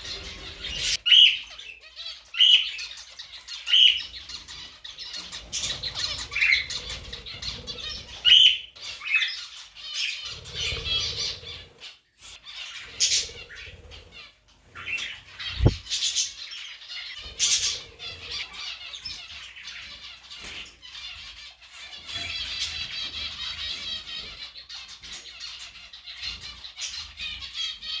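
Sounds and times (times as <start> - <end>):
birds chirping and squawking: 0.0 - 28.0
wings fluttering: 14.8 - 16.2.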